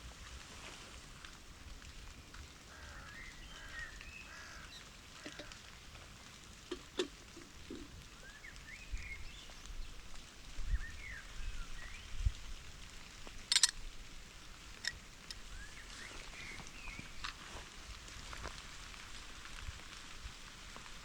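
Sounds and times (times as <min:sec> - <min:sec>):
rain hiss: 0:00.0 - 0:21.0
birds calling: 0:02.7 - 0:05.7, 0:06.6 - 0:09.7.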